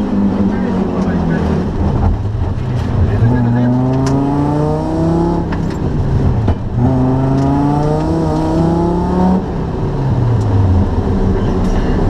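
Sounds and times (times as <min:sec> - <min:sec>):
rally car engine accelerating: 0:00.0 - 0:12.0.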